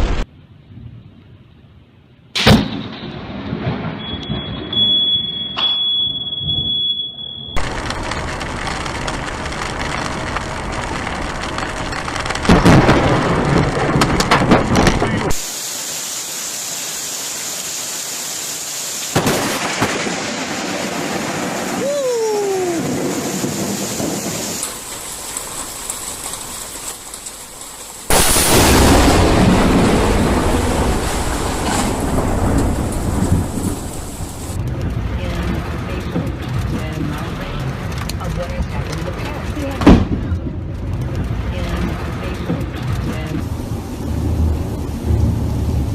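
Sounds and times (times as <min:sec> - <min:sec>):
thunderclap and rumble: 0:02.4 - 0:04.9, 0:07.6 - 0:15.4, 0:19.2 - 0:45.9
sharp crack: 0:07.6 - 0:15.5, 0:24.4 - 0:34.6
heavy rain: 0:07.6 - 0:45.9.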